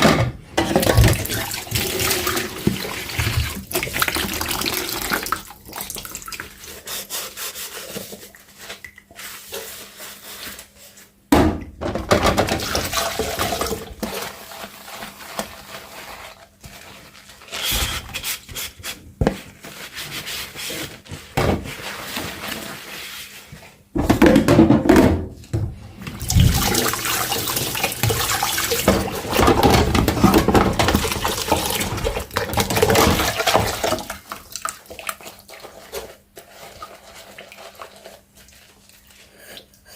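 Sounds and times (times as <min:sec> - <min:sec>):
tap water splashing over dishes: 0:00.6 - 0:06.6, 0:11.9 - 0:14.4, 0:26.0 - 0:38.6
dishes knocking: 0:24.0 - 0:25.4.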